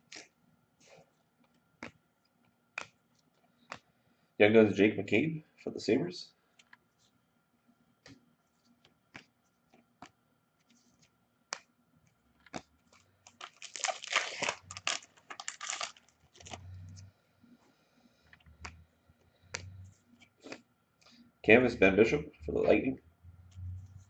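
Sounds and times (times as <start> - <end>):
cards clicking and tapping: 1.4 - 3.9, 8.0 - 16.6, 18.3 - 18.8, 19.4 - 21.2
card pack wrapper tearing and crinkling: 13.3 - 16.6.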